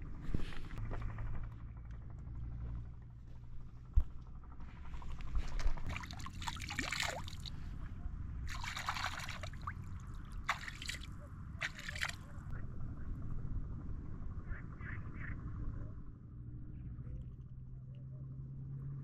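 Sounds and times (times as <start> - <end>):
liquid pouring and splashing: 5.9 - 7.5, 8.5 - 9.8, 10.4 - 12.2.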